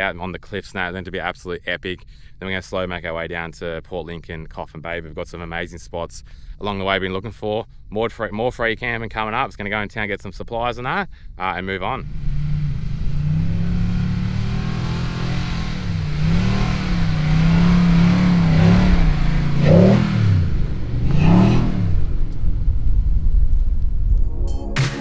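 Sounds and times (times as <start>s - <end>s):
vehicle engine revving under load: 12.0s - 23.0s.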